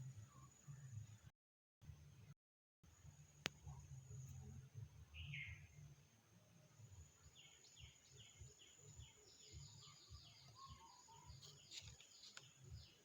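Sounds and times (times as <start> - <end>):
faint bird chirps: 3.6 - 5.9, 6.9 - 13.0.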